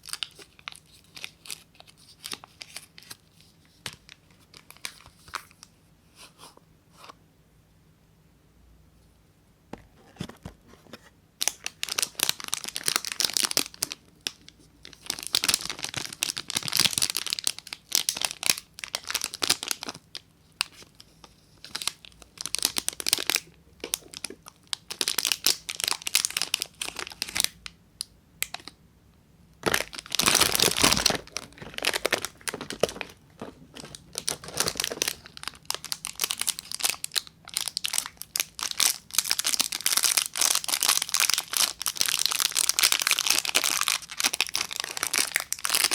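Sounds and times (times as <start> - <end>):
wrapper crinkling and tearing: 0.0 - 5.7, 11.4 - 27.6, 29.6 - 45.9.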